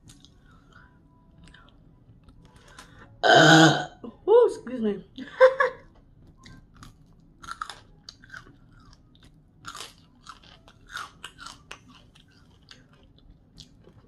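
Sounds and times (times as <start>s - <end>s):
chewing crunchy fried food: 0.0s - 3.2s, 5.9s - 14.0s.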